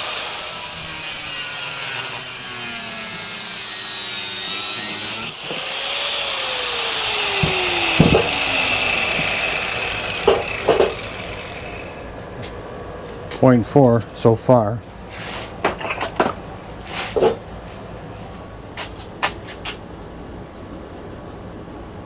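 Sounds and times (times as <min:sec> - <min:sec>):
power tool cutting metal: 0:00.0 - 0:12.1
sharp metal knocks: 0:07.2 - 0:11.6.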